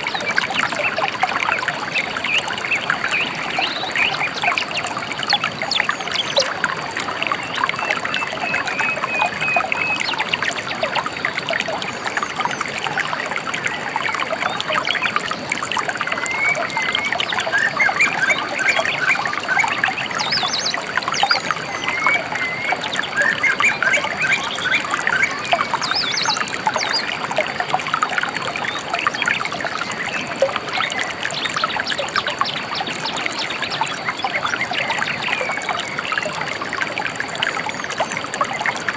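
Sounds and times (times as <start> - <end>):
water trickling over stones: 0.0 - 38.9
small birds chirping: 16.0 - 27.5.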